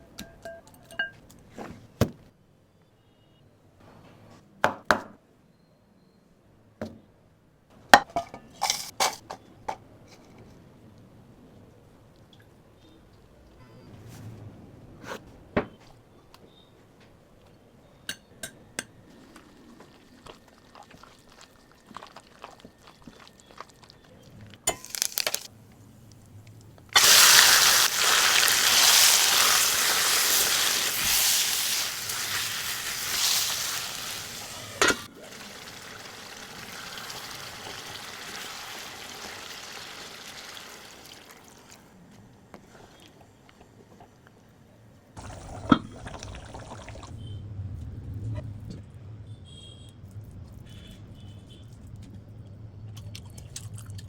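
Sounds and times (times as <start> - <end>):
kitchen utensils clicking: 8.6 - 9.2, 33.2 - 35.1
loud sizzle in cooking pan: 27.0 - 41.3.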